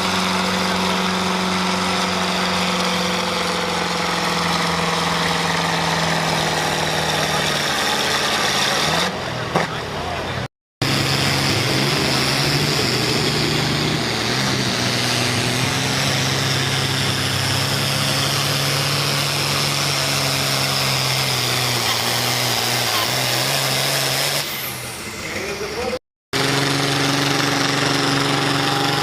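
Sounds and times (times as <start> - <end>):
tractor engine at high revs: 0.0 - 29.0.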